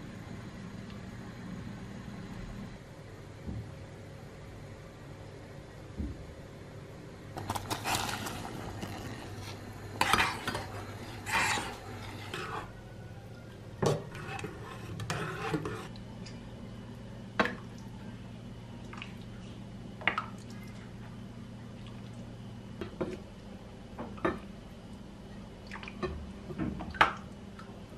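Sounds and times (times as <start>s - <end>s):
steady low hum: 0.0s - 27.9s
spoon stirring and scraping bowl: 7.4s - 12.7s, 13.9s - 15.9s.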